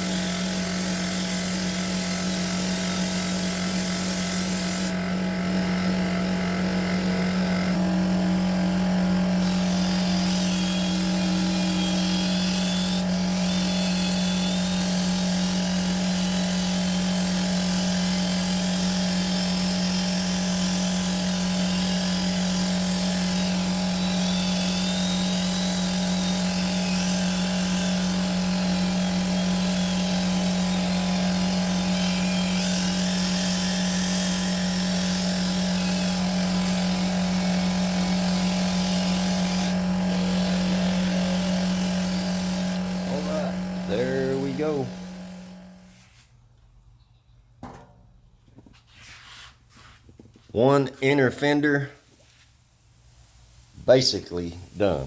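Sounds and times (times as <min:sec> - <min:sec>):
buffer pad hissing on paint: 0:00.0 - 0:05.0, 0:22.2 - 0:46.0
electric paint buffer running: 0:00.0 - 0:46.0.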